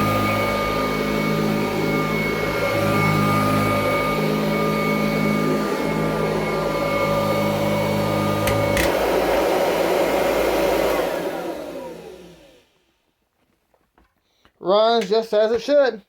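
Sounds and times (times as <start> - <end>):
vacuum cleaner motor whine: 0.0 - 12.8
vacuum motor winding down: 0.0 - 12.8.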